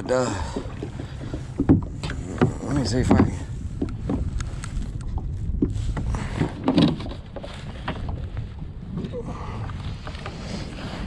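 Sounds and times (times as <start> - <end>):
knocks and rustles in kayak: 0.0 - 11.0
wind rumble on microphone: 0.0 - 11.0.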